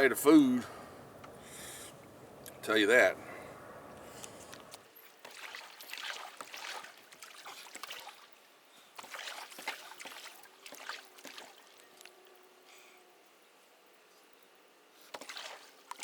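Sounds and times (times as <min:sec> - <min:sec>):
water splashing and lapping: 0:04.0 - 0:12.2, 0:15.0 - 0:16.0.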